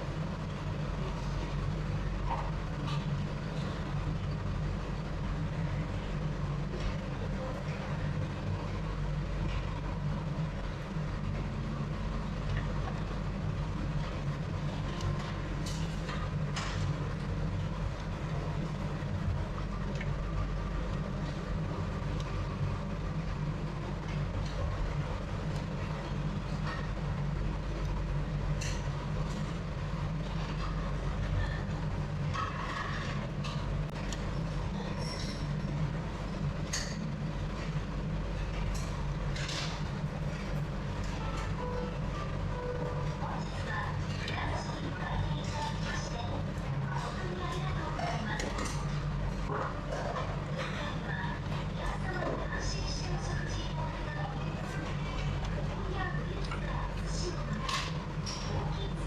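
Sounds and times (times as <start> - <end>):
low mechanical rumble: 0.0 - 59.0.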